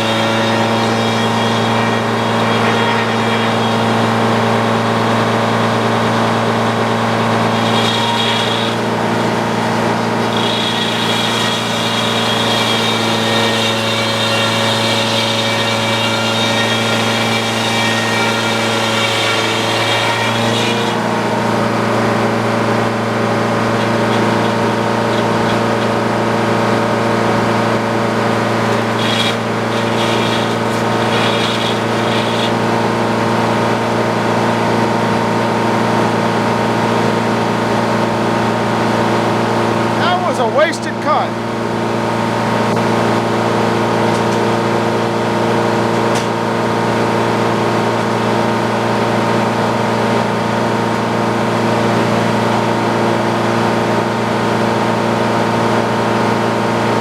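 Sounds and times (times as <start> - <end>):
high saw blade whine: 0.0 - 35.2
sawmill engine running: 0.0 - 57.0.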